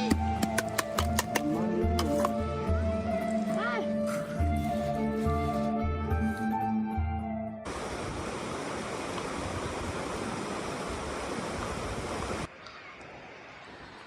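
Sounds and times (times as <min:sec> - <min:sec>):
music: 0:00.0 - 0:07.7
heavy rain hissing: 0:07.7 - 0:14.0.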